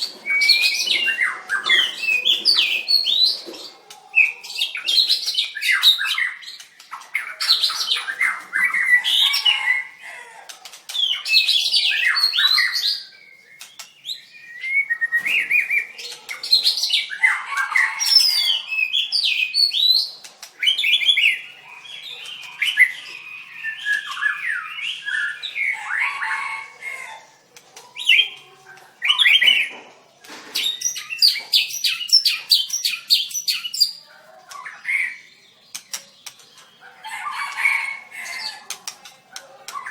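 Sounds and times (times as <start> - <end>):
bird singing whistles and trills: 0.0 - 3.4, 10.9 - 17.3, 17.9 - 26.2.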